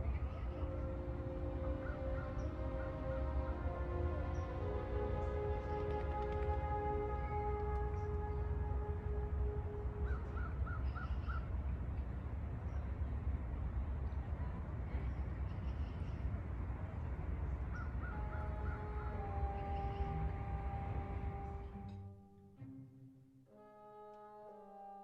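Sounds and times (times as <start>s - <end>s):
music: 0.0s - 10.5s, 18.0s - 25.0s
low outdoor rumble: 0.0s - 22.8s.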